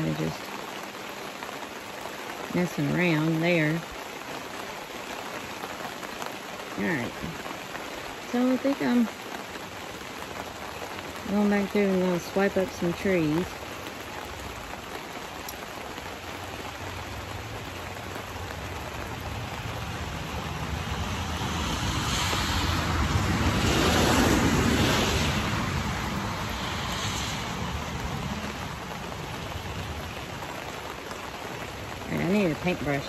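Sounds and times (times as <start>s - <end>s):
steady rain falling: 0.0s - 33.0s
vehicle tyre hiss on wet road: 0.3s - 33.0s.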